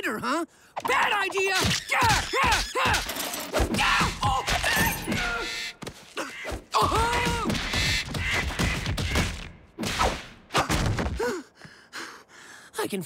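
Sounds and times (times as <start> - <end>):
cartoon fight thumps and knocks: 0.8 - 5.3, 6.5 - 11.3
squawking bird calls: 3.8 - 9.3.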